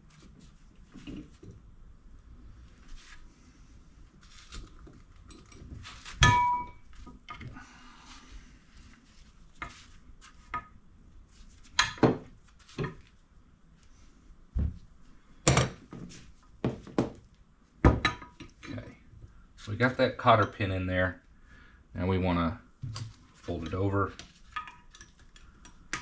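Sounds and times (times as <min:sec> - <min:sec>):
short metallic ring: 0:06.2 - 0:06.9.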